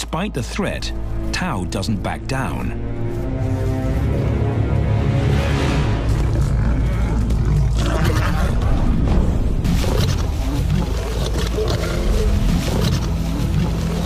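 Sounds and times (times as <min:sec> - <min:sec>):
dramatic background music: 0:00.0 - 0:14.0
lions roaring: 0:06.1 - 0:14.0.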